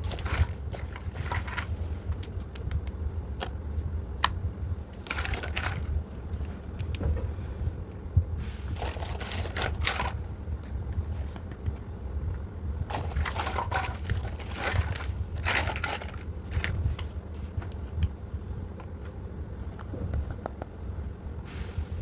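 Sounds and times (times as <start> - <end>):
plastic packaging crinkling: 0.0 - 2.4, 4.9 - 5.9, 8.8 - 10.2, 12.9 - 16.8
steady low hum: 0.0 - 22.0.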